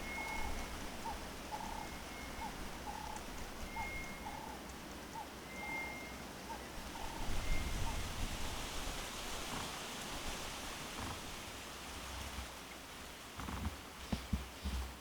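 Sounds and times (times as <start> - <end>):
thin high bird whistle: 0.0 - 0.7, 1.5 - 4.6, 5.5 - 6.2
bird calling low notes: 0.0 - 8.0
background hiss: 0.0 - 15.0.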